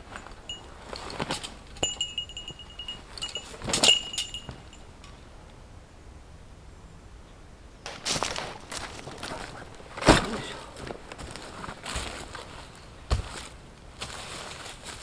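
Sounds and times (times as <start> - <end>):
small metal bell jingling: 0.0 - 5.2
light metal clinks: 0.0 - 5.4.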